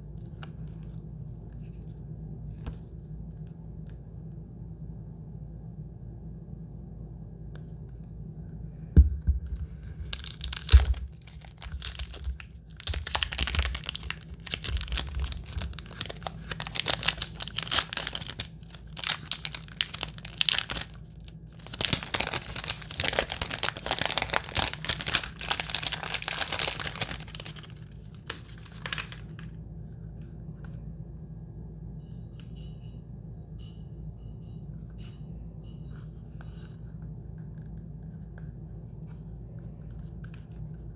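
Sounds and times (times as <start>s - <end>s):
packaging being torn and crinkled: 9.6s - 29.6s.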